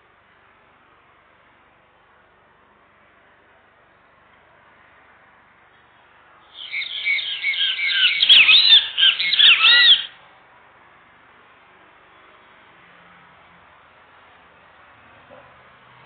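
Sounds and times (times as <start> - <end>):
bird chirping: 6.5 - 10.2.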